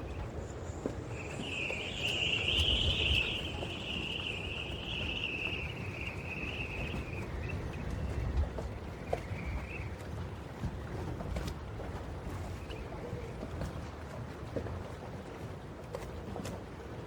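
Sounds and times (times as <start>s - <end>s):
insect high trill: 0.4s - 8.2s.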